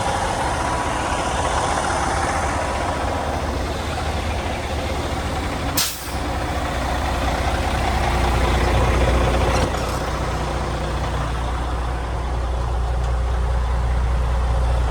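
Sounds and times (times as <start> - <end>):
truck engine idling: 0.0 - 14.9.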